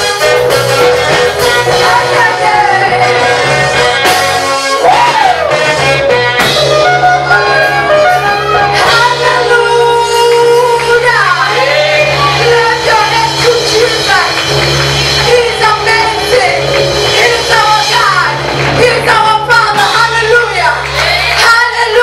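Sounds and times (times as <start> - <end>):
held instrumental backing: 0.0 - 22.0
gospel choir singing: 0.9 - 4.2, 11.0 - 22.0.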